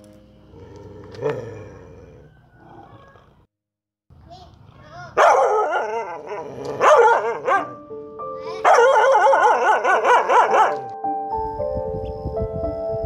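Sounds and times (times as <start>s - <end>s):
dog howling: 5.2s - 7.8s, 8.7s - 10.9s
background music with held notes: 6.2s - 13.0s.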